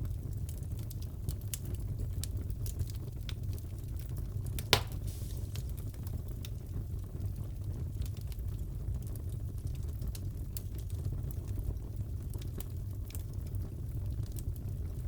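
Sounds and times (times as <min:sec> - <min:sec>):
wood fire crackling: 0:00.3 - 0:15.0
loud fire pop: 0:04.6 - 0:05.8.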